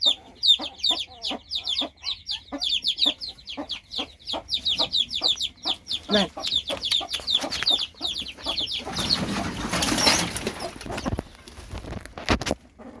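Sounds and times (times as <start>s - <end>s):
young animal squeaky cries: 0.0s - 10.6s
rustling: 6.8s - 13.0s.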